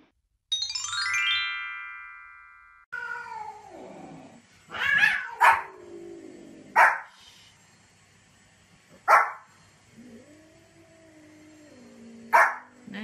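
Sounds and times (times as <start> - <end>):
bright chime: 0.5 - 2.9
small dog barking: 4.8 - 5.7, 6.7 - 7.1, 9.0 - 9.4, 12.3 - 12.7.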